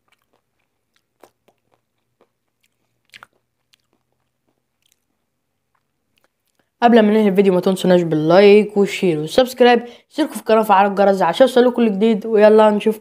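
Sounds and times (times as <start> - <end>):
soft chewing crunches: 0.0 - 6.8.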